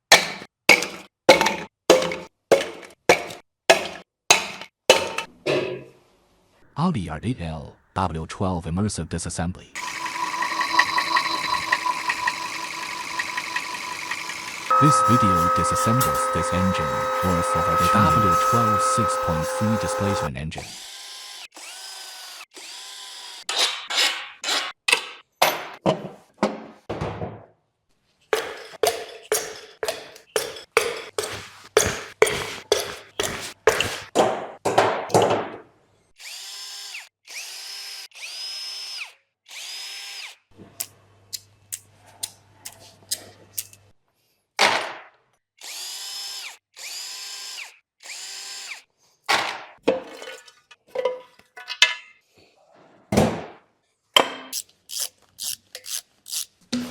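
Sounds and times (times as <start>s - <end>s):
power tool whirring: 9.8s - 23.4s, 36.2s - 40.4s, 45.6s - 48.8s.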